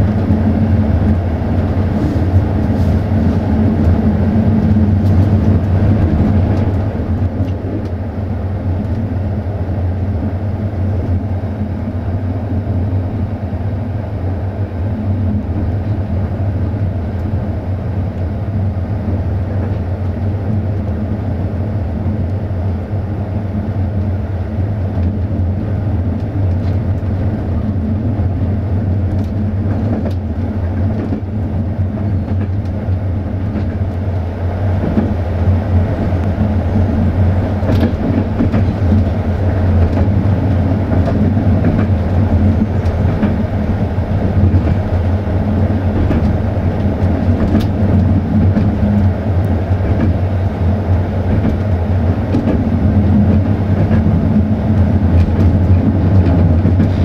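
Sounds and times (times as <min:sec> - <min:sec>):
train wheels rumbling on track: 0:00.0 - 0:57.0.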